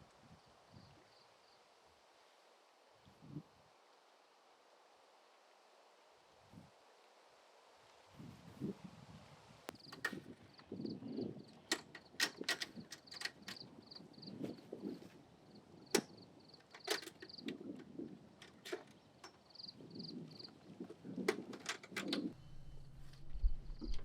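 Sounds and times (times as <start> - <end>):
sharp clicks and knocks: 9.7 - 10.7, 11.6 - 13.6, 15.9 - 19.5
rustling handling noise: 11.4 - 24.0.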